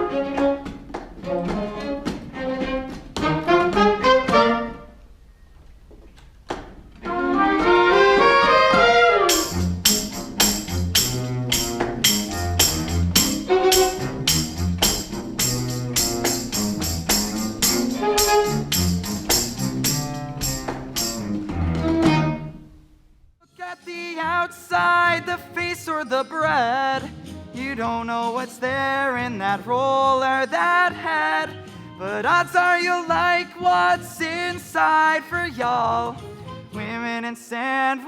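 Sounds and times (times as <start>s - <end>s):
pit orchestra playing: 1.4s - 4.9s, 7.0s - 22.6s.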